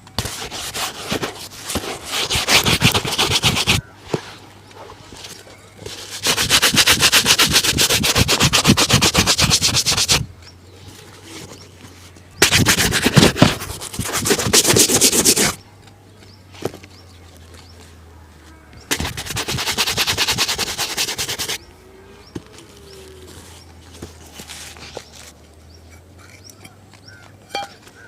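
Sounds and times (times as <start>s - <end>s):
shoe brush scrubbing: 0.2s - 3.9s, 5.8s - 10.3s, 12.4s - 15.6s, 18.9s - 21.6s.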